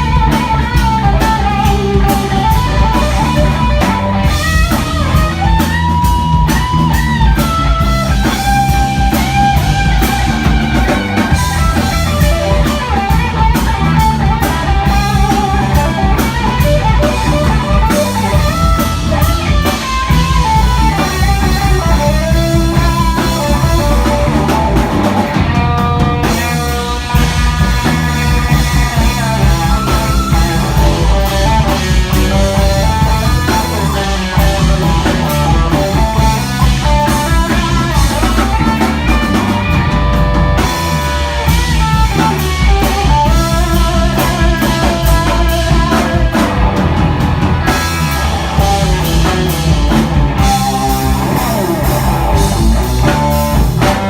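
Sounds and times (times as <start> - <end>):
bass guitar: 0.0 - 54.0
drum kit: 0.0 - 54.0
lead guitar with bent notes: 0.0 - 54.0.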